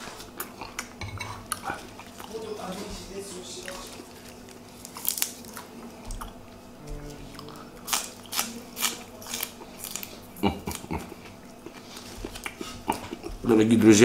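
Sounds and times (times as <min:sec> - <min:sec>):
person chewing raw greens: 0:00.0 - 0:02.4, 0:03.6 - 0:13.5
crisp crunches: 0:03.6 - 0:05.7.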